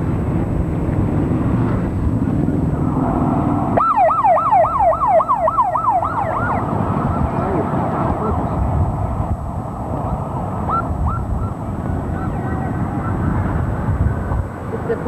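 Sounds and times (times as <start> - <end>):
traffic rumble: 0.0 - 15.0
police siren yelping: 3.8 - 8.2, 10.6 - 13.4.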